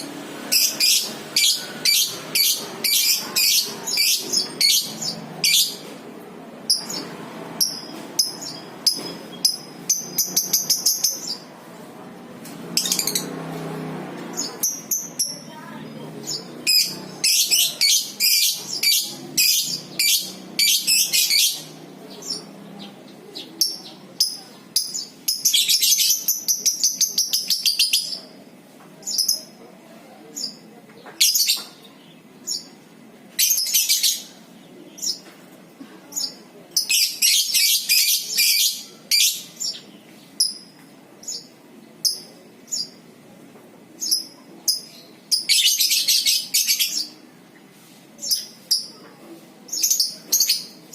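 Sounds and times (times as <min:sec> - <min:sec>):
lovebirds chattering trills: 0:00.0 - 0:05.9, 0:06.6 - 0:11.5, 0:14.3 - 0:28.4.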